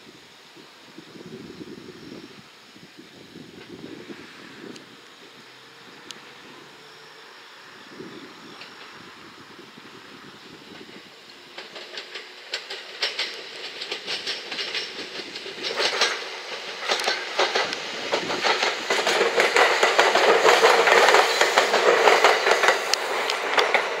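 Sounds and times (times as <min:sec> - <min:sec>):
train wheels clicking over rail joints: 0:08.4 - 0:24.0.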